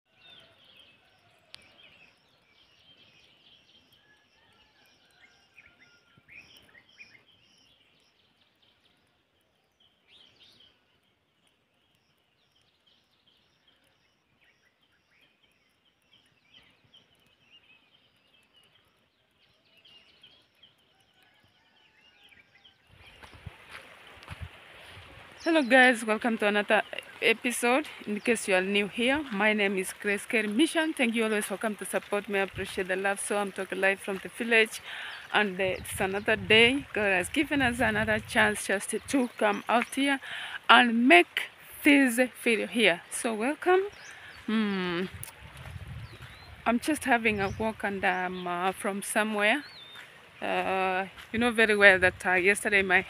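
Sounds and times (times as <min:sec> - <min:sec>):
birds chirping and calling: 0:22.9 - 0:53.0.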